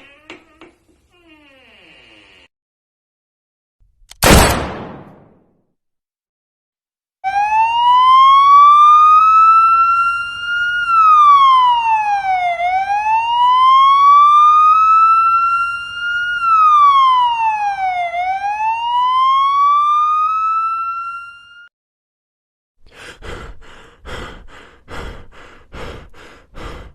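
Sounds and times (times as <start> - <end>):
emergency vehicle siren wailing: 7.2 - 21.7.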